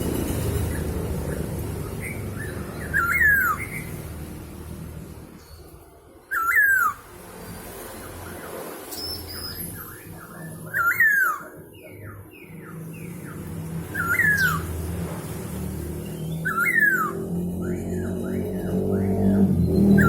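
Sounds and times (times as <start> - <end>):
laughingthrush whistled calls: 2.0 - 4.0, 6.3 - 7.0, 8.9 - 14.8, 16.1 - 18.4.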